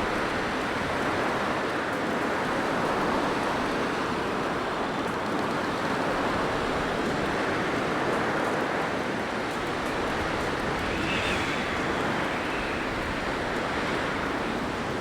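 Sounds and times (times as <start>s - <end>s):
blizzard wind blowing: 9.2s - 15.0s.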